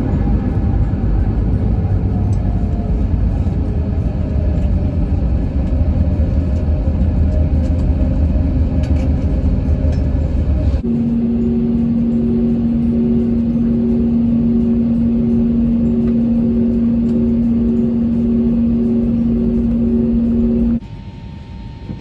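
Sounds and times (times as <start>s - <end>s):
jet airliner cabin rumble: 0.0s - 22.0s
steady hum with clear tone: 0.0s - 22.0s
faint drifting tones: 10.8s - 20.8s.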